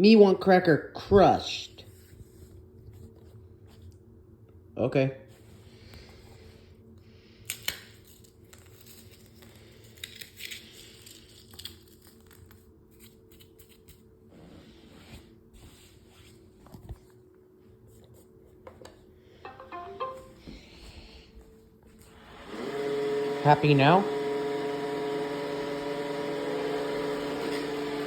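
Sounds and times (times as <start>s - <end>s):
crackers crunching: 7.3s - 14.1s.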